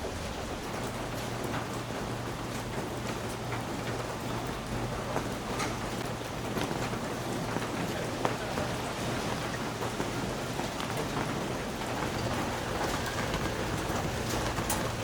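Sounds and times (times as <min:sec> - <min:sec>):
raindrops ticking on a surface: 0:00.0 - 0:15.0
steady rainfall: 0:00.0 - 0:15.0.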